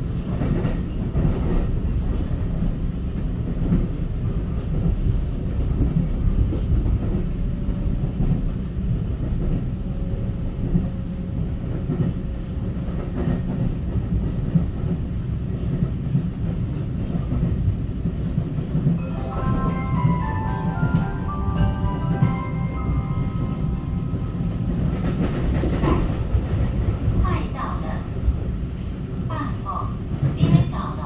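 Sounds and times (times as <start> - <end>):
train wheels rumbling on rail: 0.0 - 31.0
short electronic melody: 19.0 - 25.7.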